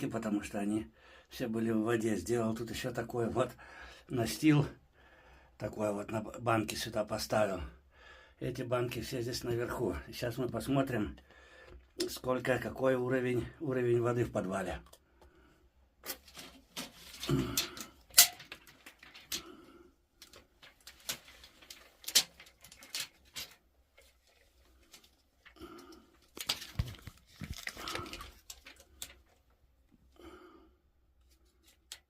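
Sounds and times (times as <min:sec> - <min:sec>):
person breathing: 0:00.9 - 0:01.3, 0:03.6 - 0:04.1, 0:04.8 - 0:05.6, 0:07.8 - 0:08.4, 0:11.2 - 0:11.9, 0:19.0 - 0:20.5, 0:25.4 - 0:26.6, 0:27.5 - 0:29.2, 0:30.1 - 0:30.9
clicks and knocks of handling: 0:16.0 - 0:19.5, 0:20.2 - 0:29.5.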